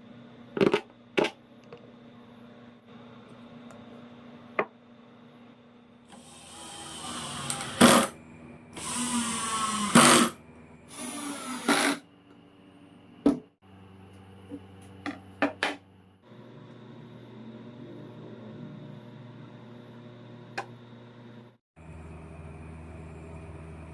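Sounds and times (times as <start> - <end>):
power drill running: 6.1 - 12.0.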